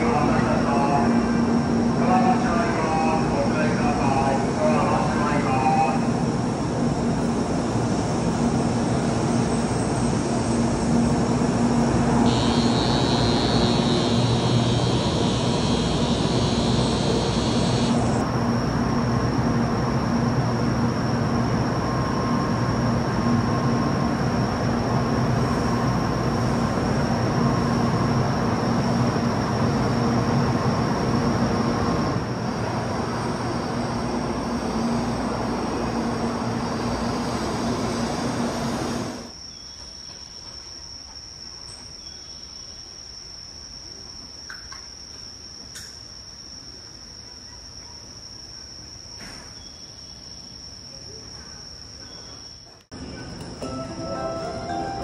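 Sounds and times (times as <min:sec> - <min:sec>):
train rumble with low hum: 0:00.0 - 0:39.4.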